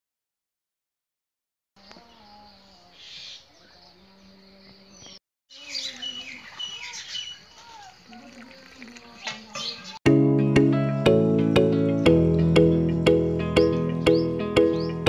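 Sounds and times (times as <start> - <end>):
birds chirping and calling: 1.8 - 10.0, 13.4 - 15.0.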